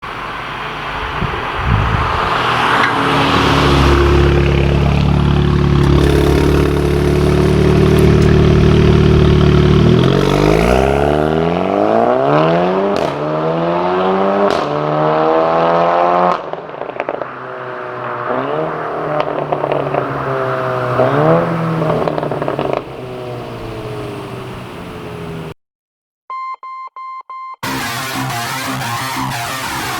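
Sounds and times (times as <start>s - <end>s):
car engine revving: 0.2s - 25.6s, 27.6s - 29.9s
exhaust cracks: 1.1s - 12.0s, 12.9s - 13.3s, 18.2s - 24.6s.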